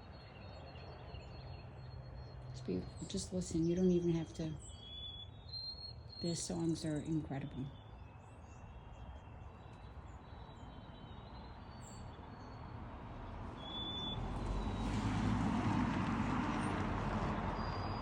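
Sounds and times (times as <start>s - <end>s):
birds chirping and whistling: 4.6s - 6.7s.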